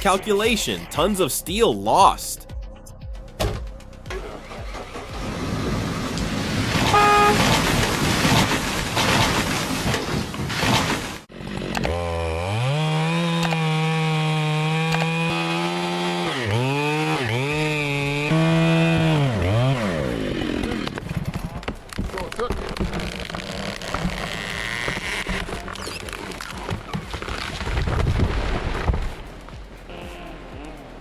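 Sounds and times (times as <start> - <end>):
chainsaw revving: 4.3 - 9.6, 10.5 - 27.8
loud rough noise: 4.3 - 11.7, 15.2 - 29.2.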